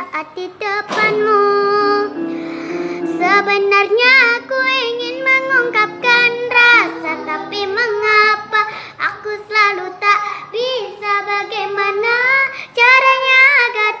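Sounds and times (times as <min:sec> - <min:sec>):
child singing a pop ballad: 0:00.0 - 0:14.0
soft instrumental backing: 0:01.0 - 0:08.6.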